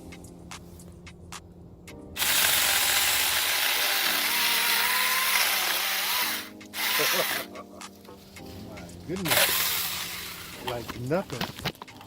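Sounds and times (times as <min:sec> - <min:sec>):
chainsaw clicks: 0:02.2 - 0:07.5, 0:09.2 - 0:10.8
chainsaw cutting branch: 0:02.2 - 0:07.6, 0:09.2 - 0:11.0.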